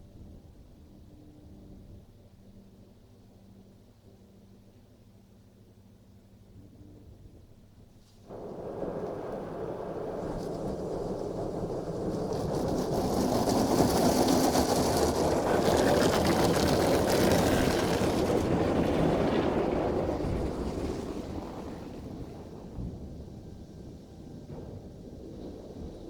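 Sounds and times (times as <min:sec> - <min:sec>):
car wash gantry rushing: 0:08.3 - 0:26.0.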